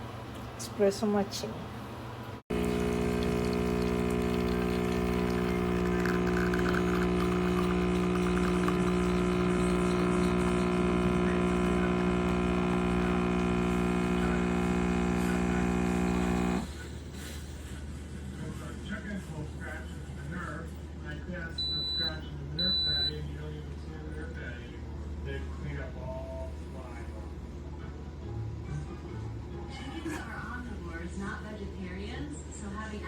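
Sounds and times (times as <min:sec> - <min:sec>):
espresso machine pump humming: 0:02.5 - 0:16.8.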